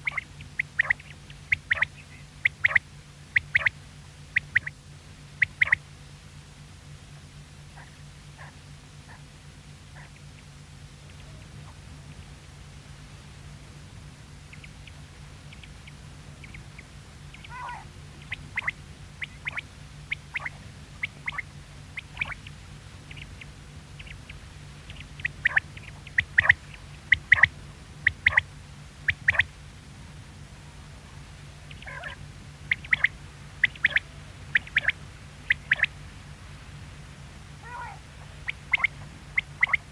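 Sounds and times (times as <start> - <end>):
quail calling: 0.0 - 4.8, 5.4 - 5.8, 7.7 - 9.3, 9.9 - 10.5, 14.4 - 29.5, 31.7 - 36.0, 37.6 - 39.9
low hum: 0.0 - 39.9.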